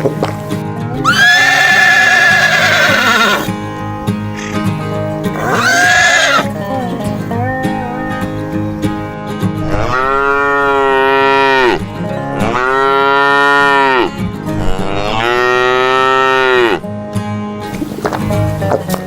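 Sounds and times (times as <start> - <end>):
background music: 0.0 - 19.0
long animal calls: 1.0 - 3.5, 4.3 - 7.4.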